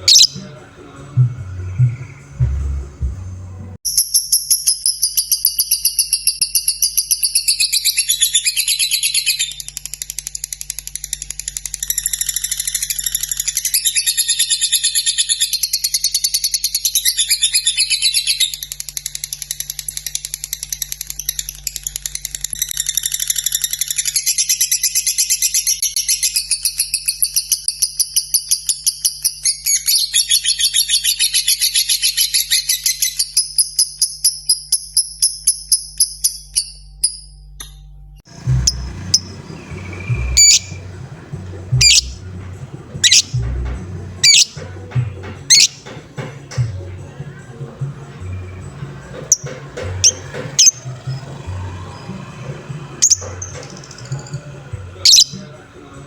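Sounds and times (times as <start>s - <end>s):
lovebird chattering trill: 0.0s - 0.6s, 38.3s - 44.7s, 45.5s - 45.9s, 49.3s - 52.2s, 53.0s - 55.4s.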